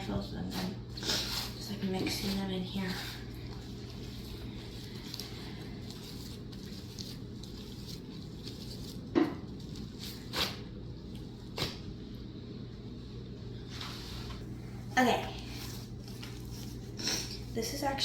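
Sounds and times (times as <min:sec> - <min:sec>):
slime squishing and crackling: 0:02.1 - 0:10.6.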